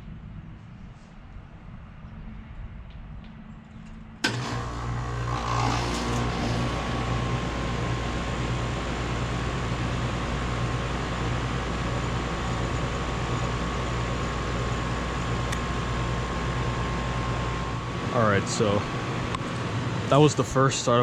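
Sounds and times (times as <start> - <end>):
air conditioner unit humming: 4.2 - 21.0.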